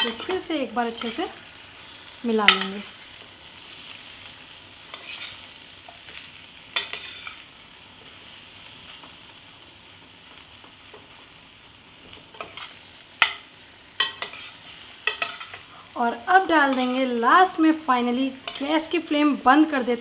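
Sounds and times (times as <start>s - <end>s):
spatula scraping a pan: 0.0s - 9.2s, 12.0s - 16.0s, 16.6s - 17.2s, 18.4s - 18.9s
potatoes sizzling in a pan: 0.0s - 20.0s.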